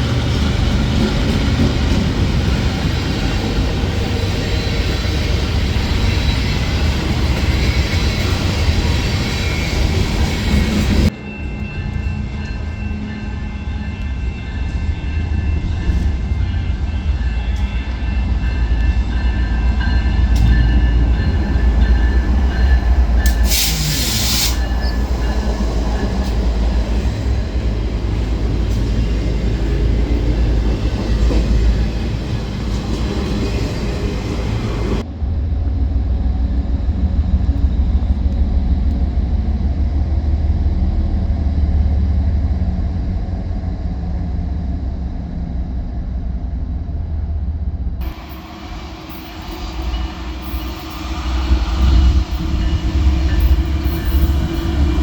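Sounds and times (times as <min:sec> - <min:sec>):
train rumbling on track: 0:00.0 - 0:55.0
loud hiss burst: 0:23.3 - 0:24.8.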